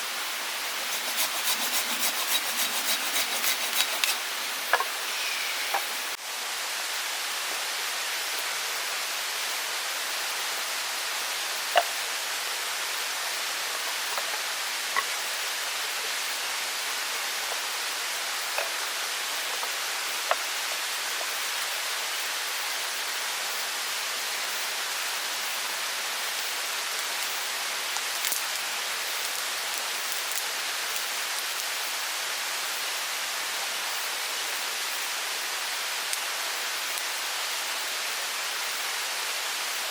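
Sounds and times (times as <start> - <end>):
mountain stream rushing: 0.0 - 6.2.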